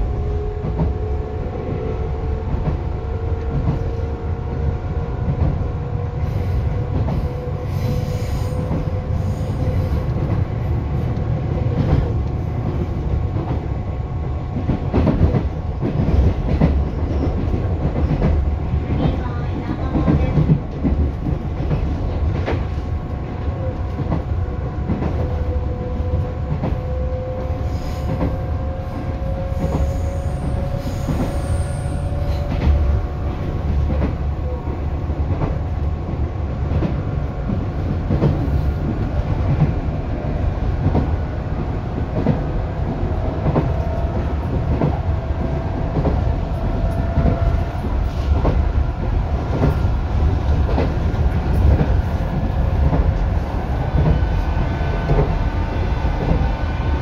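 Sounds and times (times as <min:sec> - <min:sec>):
train rumbling: 0:00.0 - 0:57.0.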